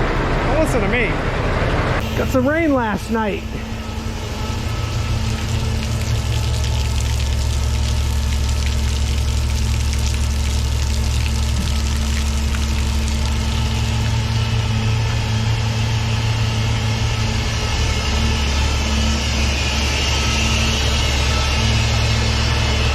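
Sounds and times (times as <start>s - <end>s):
truck diesel engine humming: 1.5s - 22.9s.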